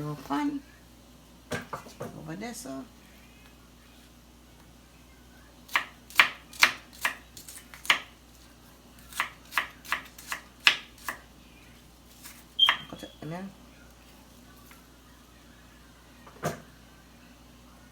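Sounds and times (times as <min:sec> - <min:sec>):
knife chopping on cutting board: 0:05.7 - 0:08.1, 0:09.1 - 0:11.2.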